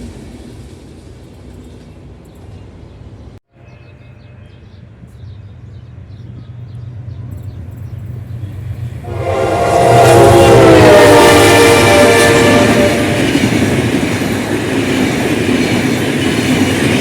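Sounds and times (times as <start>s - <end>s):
diesel locomotive engine drone: 0.0s - 17.0s
loud air horn: 9.0s - 13.4s.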